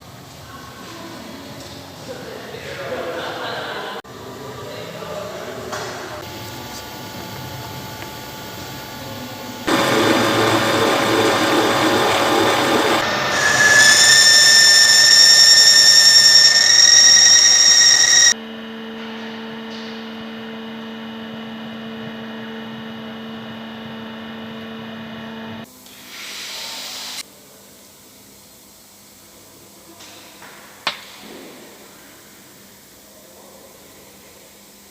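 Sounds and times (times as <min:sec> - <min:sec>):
high-pitched cutting squeal: 0:09.7 - 0:18.4
machine tool cutting metal: 0:09.7 - 0:18.4.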